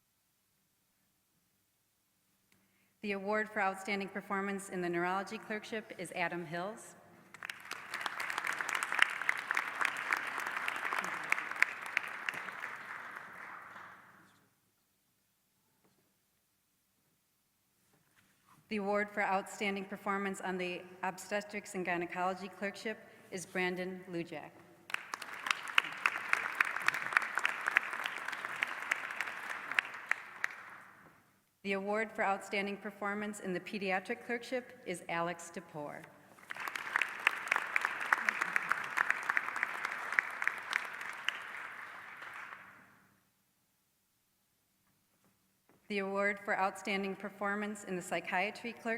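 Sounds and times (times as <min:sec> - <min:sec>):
audience applauding: 0:07.3 - 0:14.2, 0:24.9 - 0:30.9, 0:36.4 - 0:42.8.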